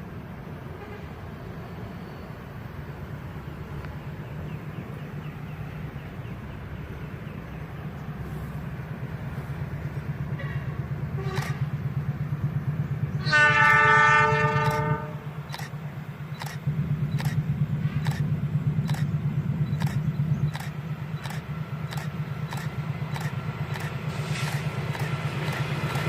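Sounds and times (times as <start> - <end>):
train rumble approaching: 0.0 - 26.0
locomotive air horn blast: 0.7 - 1.2, 10.4 - 11.7, 13.2 - 15.4.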